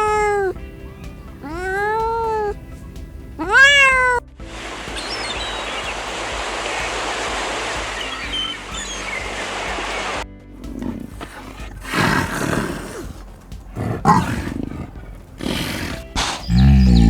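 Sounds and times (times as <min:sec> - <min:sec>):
cat meowing: 0:00.0 - 0:00.6, 0:01.3 - 0:02.7, 0:03.3 - 0:04.3, 0:10.7 - 0:17.0
steady hiss: 0:04.4 - 0:10.2
faint high chirps: 0:04.8 - 0:07.1, 0:07.8 - 0:09.6.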